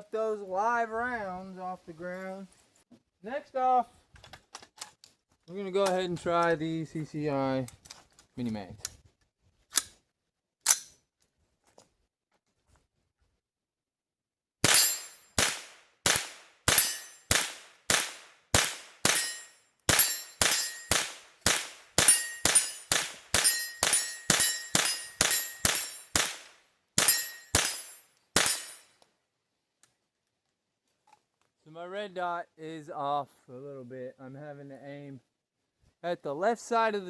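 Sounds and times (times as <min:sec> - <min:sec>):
rifle shots with ringing tail: 0:14.6 - 0:28.8.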